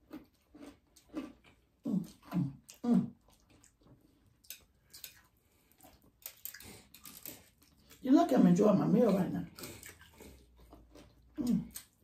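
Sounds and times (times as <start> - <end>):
chewing and lip-smacking: 0.0 - 8.0, 9.1 - 12.0
wet mouth sounds: 0.1 - 8.0, 9.4 - 12.0.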